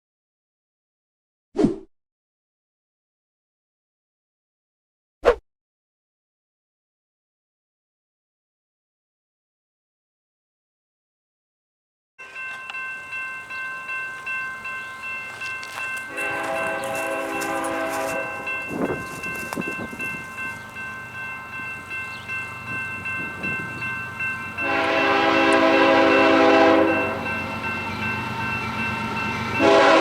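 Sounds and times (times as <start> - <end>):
steady high ringing: 12.2 - 30.0
locomotive horn blasts: 16.1 - 19.0, 24.6 - 27.5, 29.6 - 30.0.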